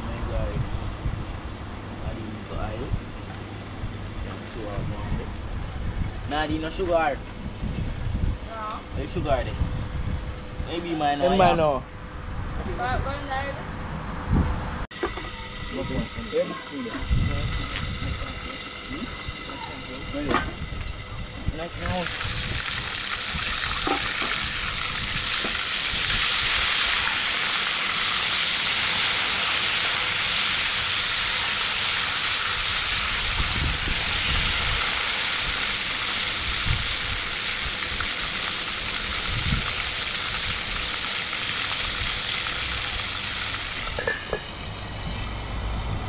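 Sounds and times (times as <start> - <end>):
food frying in hot oil: 14.9 - 45.8.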